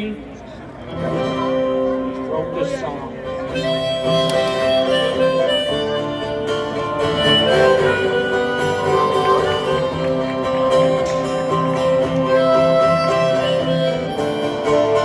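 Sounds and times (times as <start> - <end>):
strummed acoustic guitar: 0.9 - 15.0
harmonica playing held notes: 3.1 - 15.0.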